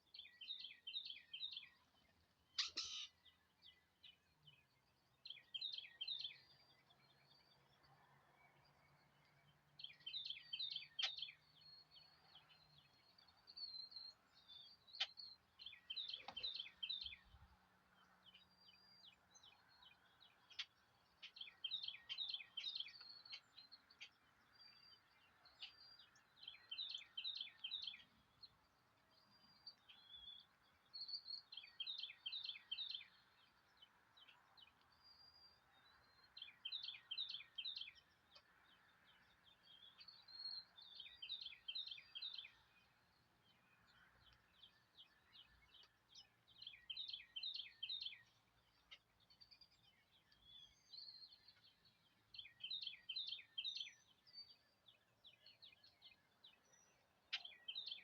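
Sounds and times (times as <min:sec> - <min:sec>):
bird song downward-sweeping notes: 0:00.0 - 0:58.0
single bird chirps: 0:02.5 - 0:03.4.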